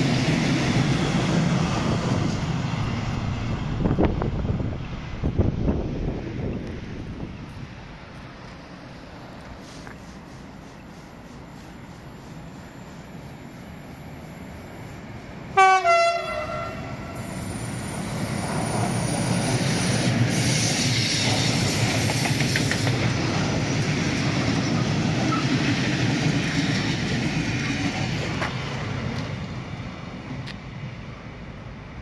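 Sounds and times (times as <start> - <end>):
freight train rumbling past: 0.0 - 32.0
locomotive horn blast: 15.6 - 17.2.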